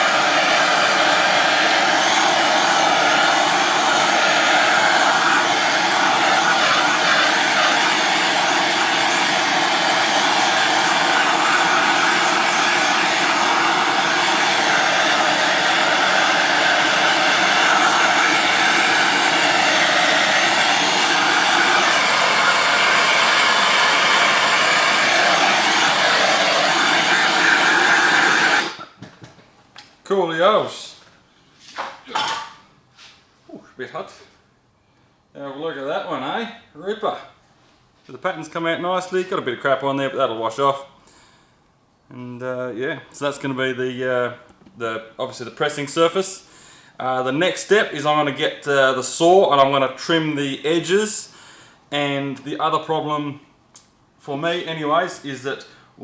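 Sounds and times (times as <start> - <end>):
gas torch flame roar: 0.0 - 29.0.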